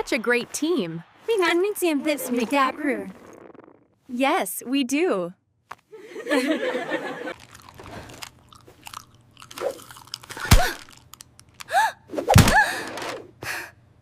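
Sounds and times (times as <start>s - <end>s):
paper crinkling: 7.3s - 11.7s.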